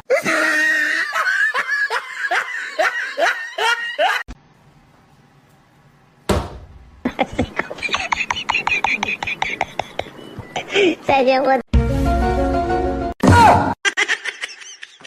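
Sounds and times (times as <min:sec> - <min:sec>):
person laughing hard: 0:00.1 - 0:04.3, 0:07.0 - 0:11.0, 0:13.8 - 0:15.0.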